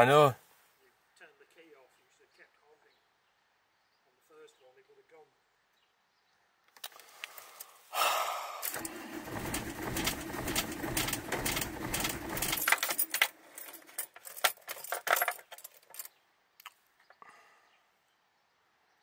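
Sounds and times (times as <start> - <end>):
diesel engine cranking on starter: 8.6 - 14.0
sharp clicks and rattles: 8.6 - 16.7.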